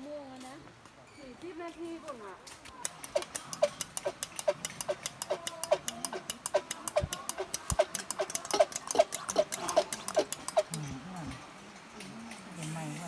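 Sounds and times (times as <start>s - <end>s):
hand pump squeaky clicks: 2.8s - 10.8s.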